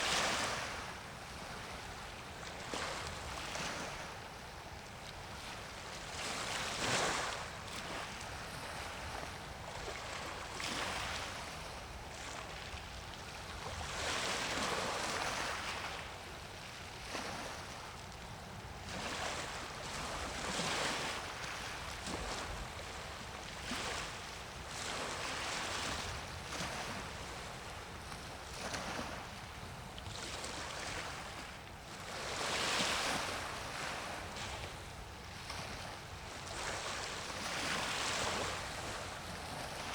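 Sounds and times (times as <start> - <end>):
small waves washing in: 18.8 - 39.9.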